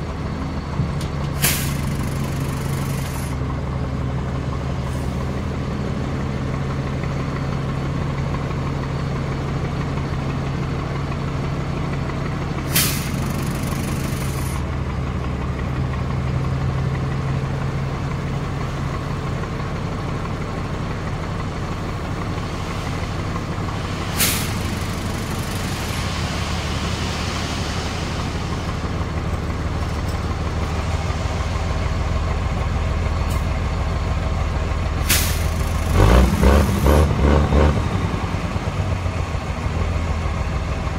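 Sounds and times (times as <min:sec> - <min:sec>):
truck diesel engine running: 0:00.0 - 0:40.9
air brake hisses: 0:01.4 - 0:03.3, 0:12.7 - 0:14.6, 0:23.8 - 0:28.9, 0:35.0 - 0:35.9.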